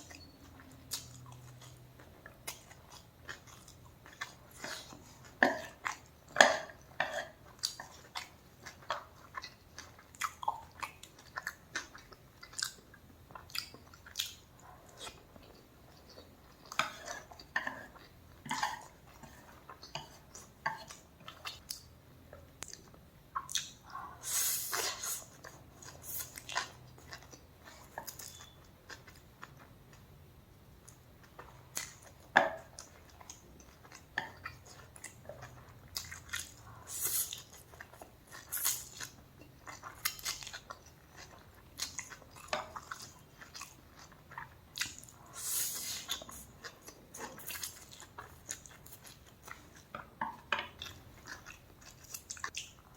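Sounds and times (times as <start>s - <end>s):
food crunching: 0.1s - 30.0s, 30.8s - 52.9s
person chewing and biting: 22.6s - 29.7s, 50.8s - 52.9s.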